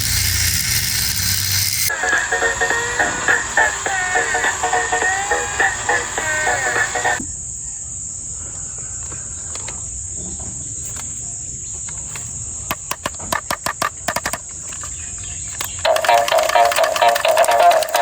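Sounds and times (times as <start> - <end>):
plastic toys clicking and tapping: 0.0 - 1.9, 11.8 - 18.0
high-pitched whine: 0.0 - 7.2
music: 1.9 - 7.2, 15.8 - 18.0.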